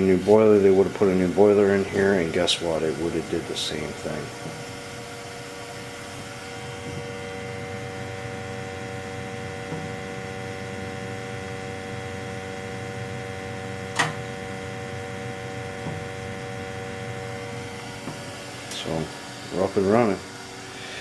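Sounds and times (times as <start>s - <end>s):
gas boiler humming: 0.0s - 21.0s
sharp click: 14.0s - 14.3s.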